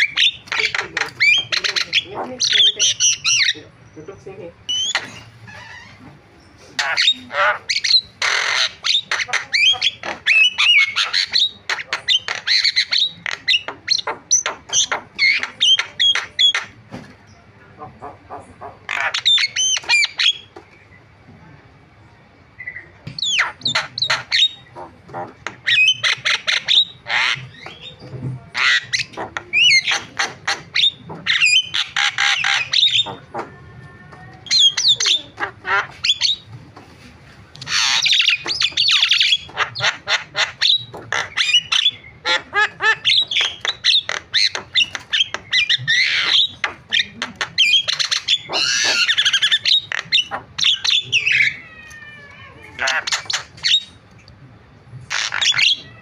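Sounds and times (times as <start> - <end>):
myna squawking and whistling: 4.7 - 5.6, 28.6 - 33.6, 34.4 - 36.5, 37.6 - 54.0, 55.0 - 56.0.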